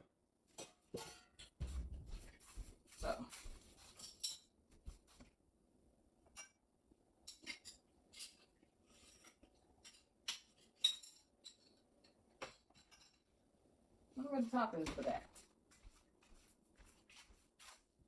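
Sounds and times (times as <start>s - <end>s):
kitchenware clicking and clinking: 0.5s - 2.3s, 3.8s - 4.6s, 6.3s - 6.6s, 7.2s - 13.3s, 14.8s - 15.4s.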